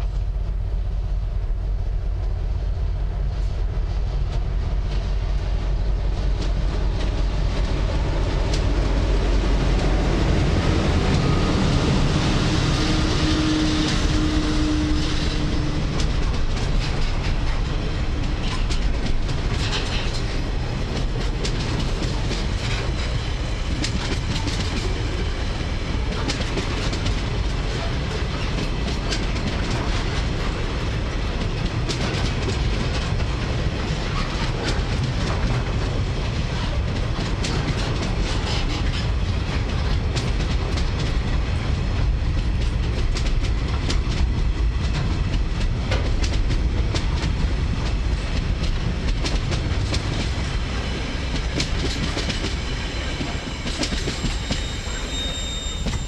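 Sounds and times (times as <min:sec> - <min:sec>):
freight wagons rumbling past: 0:00.0 - 0:56.0
wheels clicking over rail joints: 0:13.8 - 0:56.0.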